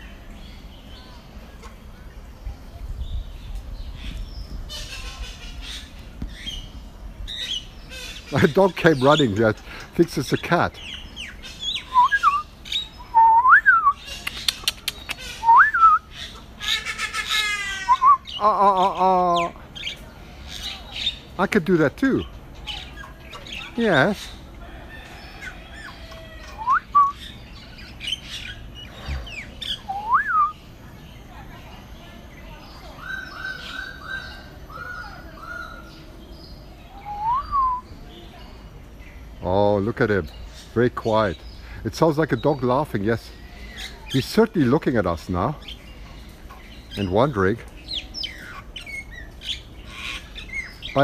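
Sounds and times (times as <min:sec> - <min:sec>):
birds whistling: 0:03.0 - 0:51.0
bird laughing call: 0:11.2 - 0:19.6, 0:25.2 - 0:27.3, 0:28.3 - 0:30.5
sharp clicks: 0:14.1 - 0:15.2
harsh cat-like bird calls: 0:22.2 - 0:30.5.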